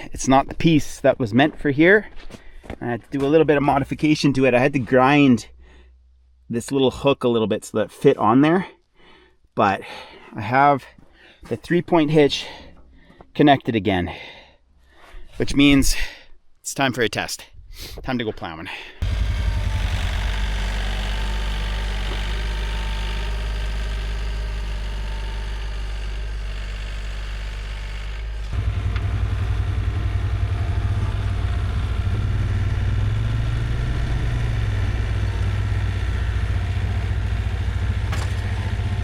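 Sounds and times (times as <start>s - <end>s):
tractor engine running: 19.0s - 39.0s.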